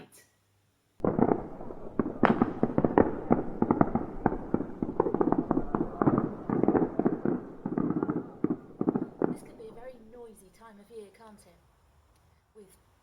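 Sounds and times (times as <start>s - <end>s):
fireworks crackling and popping: 1.0s - 10.6s.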